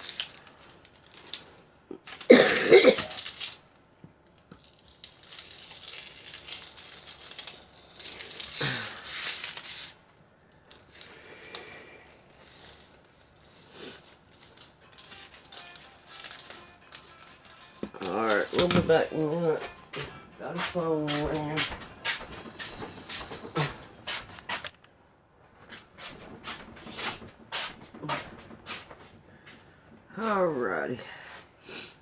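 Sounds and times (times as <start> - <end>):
loud crinkling: 0.0 - 19.0
sewing materials rustling: 0.0 - 19.0
phone ringing faintly: 14.8 - 22.6.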